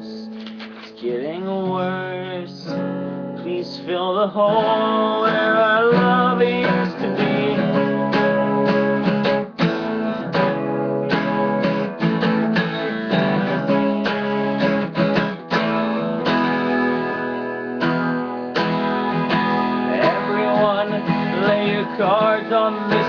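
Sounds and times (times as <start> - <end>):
acoustic guitar strumming chords: 0.0 - 23.0.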